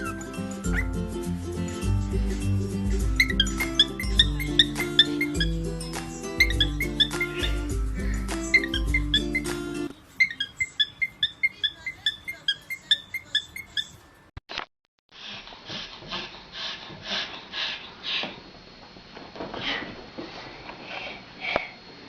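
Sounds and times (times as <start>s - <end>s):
bird squeaky chirps: 0.0s - 1.0s, 3.1s - 14.2s
breathy puffs: 6.8s - 8.7s.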